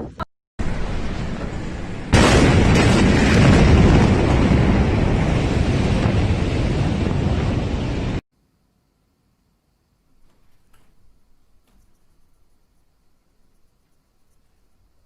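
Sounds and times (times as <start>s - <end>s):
explosion blast and rumble: 0.6s - 8.2s.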